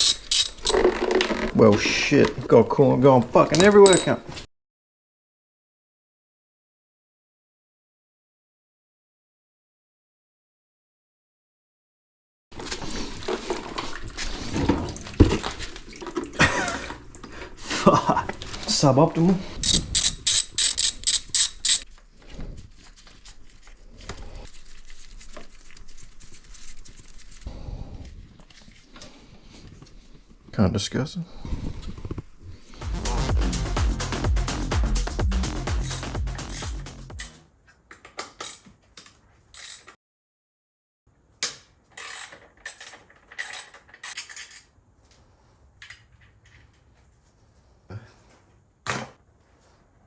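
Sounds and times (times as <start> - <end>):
hand tool sharp clicks: 0.0 - 0.8, 19.6 - 21.8, 35.8 - 37.4
light knocks and clinks: 3.5 - 4.3.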